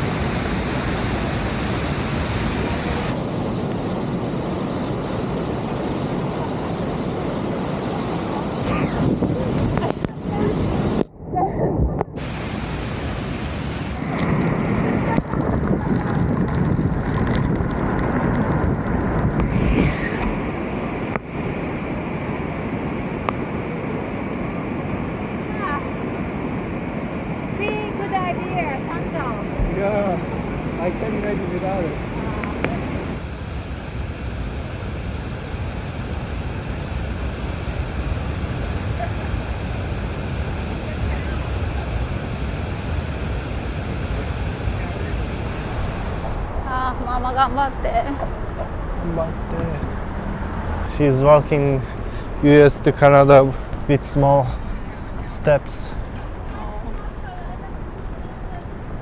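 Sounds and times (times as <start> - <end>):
waterfall roaring: 0.0 - 11.0, 12.2 - 15.3, 27.0 - 59.0
wind buffeting microphone: 0.0 - 51.0.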